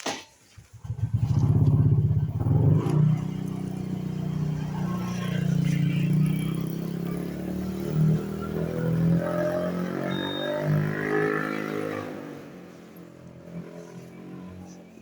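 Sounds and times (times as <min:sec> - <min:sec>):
motorcycle engine starting: 0:00.6 - 0:14.8.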